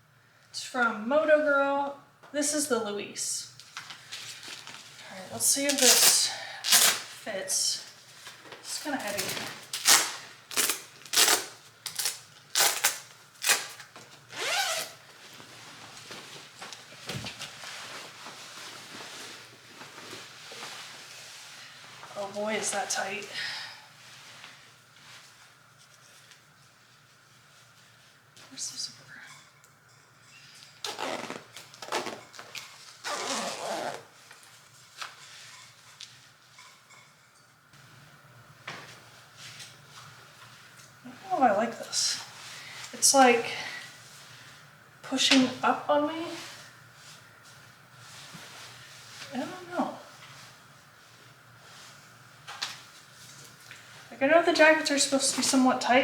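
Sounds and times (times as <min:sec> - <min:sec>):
jacket rustling: 0:08.9 - 0:23.0, 0:30.7 - 0:36.5
zipper being pulled: 0:14.3 - 0:15.0, 0:30.8 - 0:32.4, 0:33.0 - 0:34.2.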